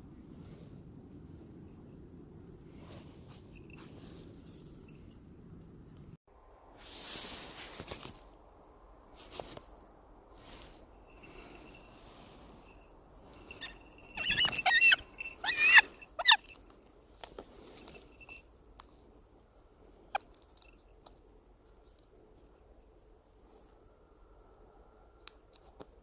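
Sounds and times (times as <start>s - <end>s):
faint rustling: 9.1s - 23.9s
hawk squealing calls: 13.5s - 16.6s.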